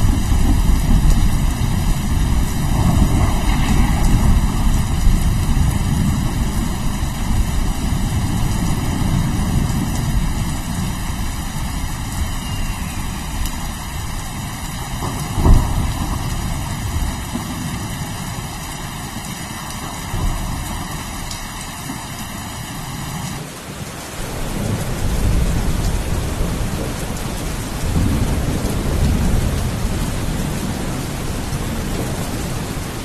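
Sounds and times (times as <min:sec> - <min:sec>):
sharp thunder crack: 0:00.0 - 0:18.4
rolling thunder rumble: 0:00.0 - 0:23.3, 0:24.2 - 0:33.0
steady rain: 0:00.0 - 0:33.0.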